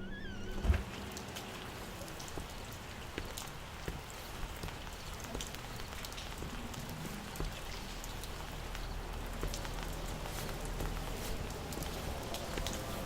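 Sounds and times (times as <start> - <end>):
rain drops falling: 0.5 - 13.0.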